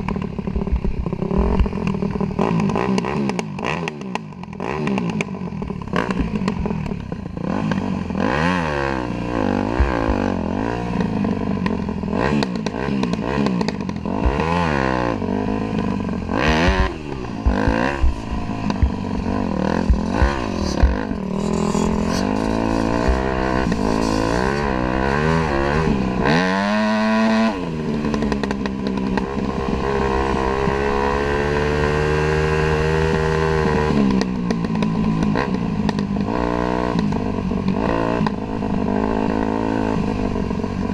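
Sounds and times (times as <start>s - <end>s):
dirt bike engine revving: 0.0s - 40.9s
sharp knocks and clatter: 15.8s - 25.8s.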